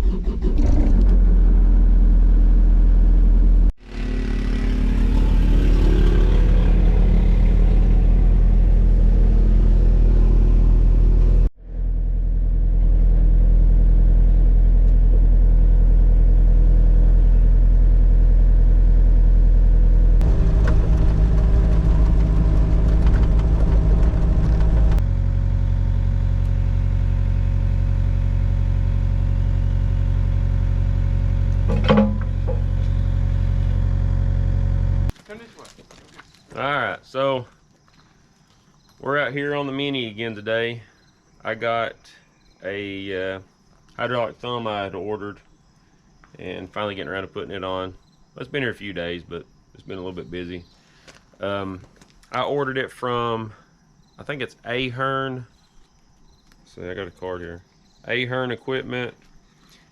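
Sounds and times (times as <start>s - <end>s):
excavator diesel engine running: 0.0s - 18.5s, 19.8s - 35.1s.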